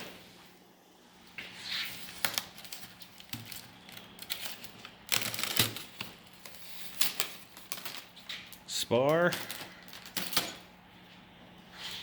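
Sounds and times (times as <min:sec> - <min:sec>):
plastic and cardboard crinkling: 0:01.4 - 0:10.7.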